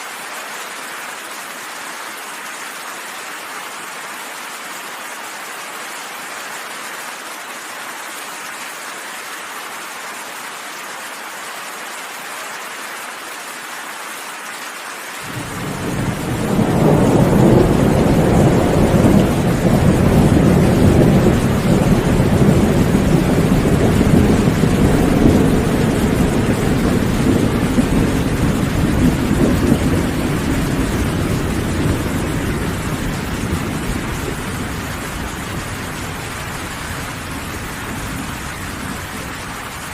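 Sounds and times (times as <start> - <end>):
steady rainfall: 0.0 - 39.9
deep thunder rumble: 15.3 - 39.9.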